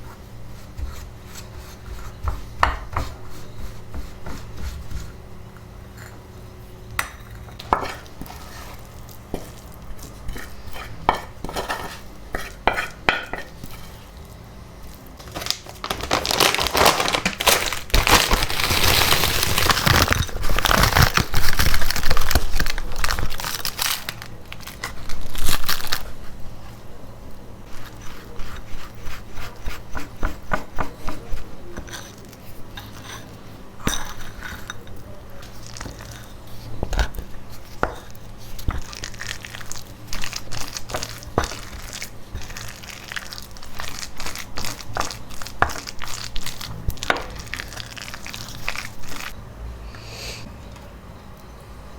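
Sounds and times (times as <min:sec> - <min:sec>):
loud crinkling: 0:15.2 - 0:26.1.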